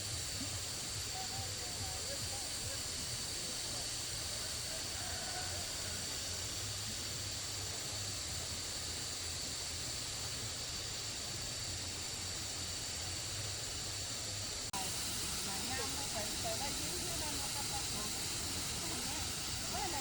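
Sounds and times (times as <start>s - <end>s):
high-pitched hiss: 0.0s - 20.0s
rushing water: 14.5s - 20.0s.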